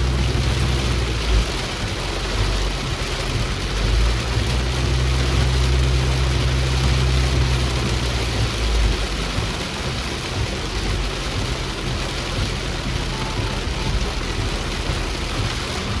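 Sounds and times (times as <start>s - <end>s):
rain and water hissing: 0.0s - 16.0s
vehicle engine hum: 0.0s - 16.0s.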